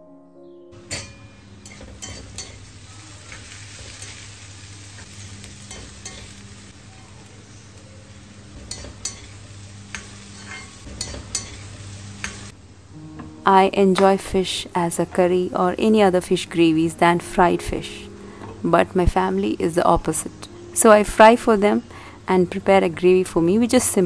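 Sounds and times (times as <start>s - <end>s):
vegetables sizzling in oil: 0.8s - 13.0s.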